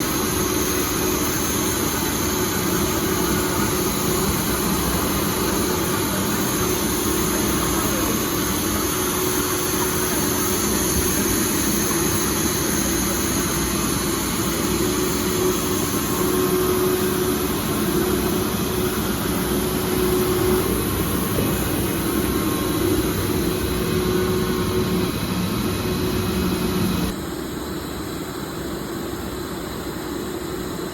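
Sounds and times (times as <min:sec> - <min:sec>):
machine drone with whine: 0:00.0 - 0:30.9.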